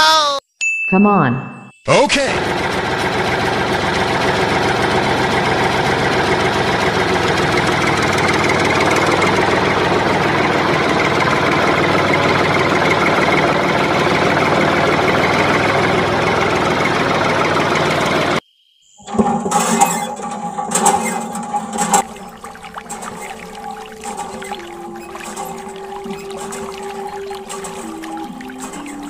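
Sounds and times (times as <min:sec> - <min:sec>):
tractor engine running: 0:01.9 - 0:18.4, 0:19.0 - 0:29.0.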